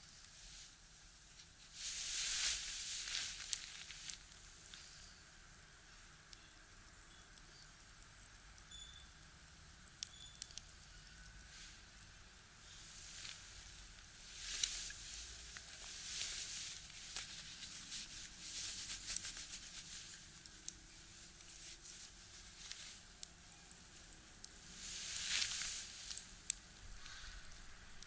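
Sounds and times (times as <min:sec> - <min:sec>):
firewood crackling and popping: 0:00.0 - 0:28.0
hissing rush of fire: 0:01.6 - 0:05.2, 0:12.6 - 0:28.0.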